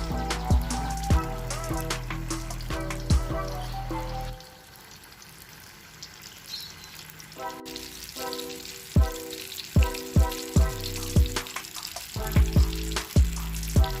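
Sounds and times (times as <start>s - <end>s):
music with heavy deep beat: 0.0s - 3.7s, 9.0s - 9.2s, 9.8s - 14.0s
food sizzling in a pan: 0.0s - 14.0s.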